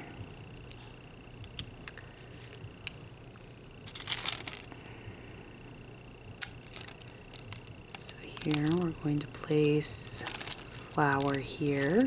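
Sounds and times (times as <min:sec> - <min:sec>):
crinkling clicks: 0:03.9 - 0:04.7, 0:06.4 - 0:12.0.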